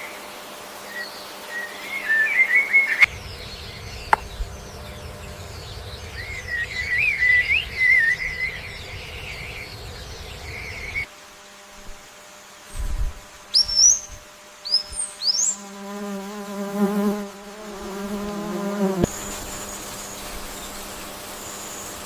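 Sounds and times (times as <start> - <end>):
forest ambience: 0.0 - 22.0
bird twittering song: 0.9 - 11.1, 12.7 - 15.7, 17.8 - 22.0.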